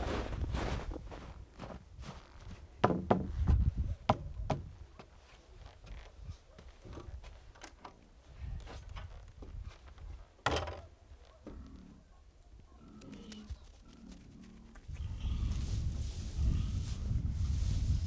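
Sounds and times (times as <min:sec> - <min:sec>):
knocks and thumps: 0:02.8 - 0:04.8.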